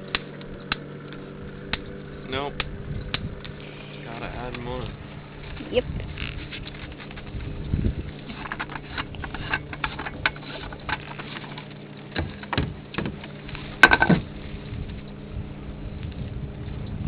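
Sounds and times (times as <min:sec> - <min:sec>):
steady low hum: 0:00.0 - 0:17.0
clicks and knocks of handling: 0:08.2 - 0:14.2.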